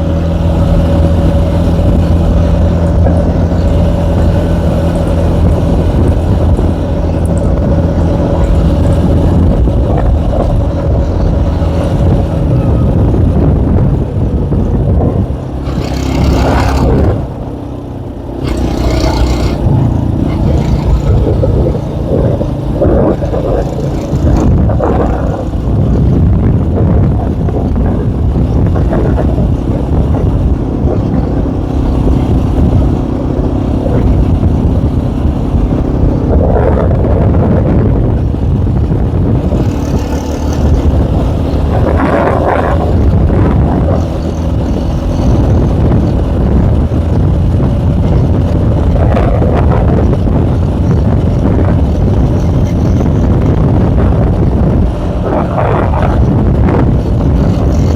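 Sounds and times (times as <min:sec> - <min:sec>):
motorcycle engine running: 0:00.0 - 0:57.9
wind buffeting microphone: 0:00.0 - 0:57.9.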